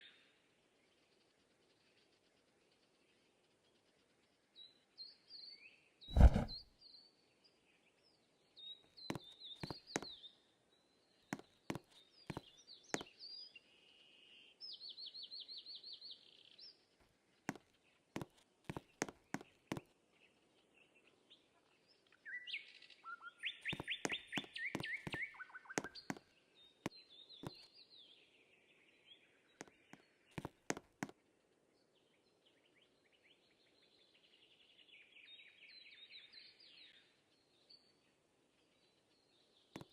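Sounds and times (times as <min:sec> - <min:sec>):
loud thump: 0:06.1 - 0:06.6.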